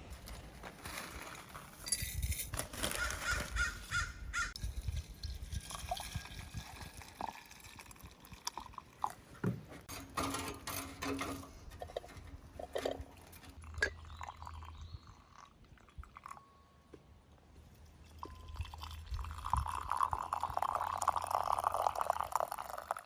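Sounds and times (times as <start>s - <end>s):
bird calling: 3.0s - 4.6s.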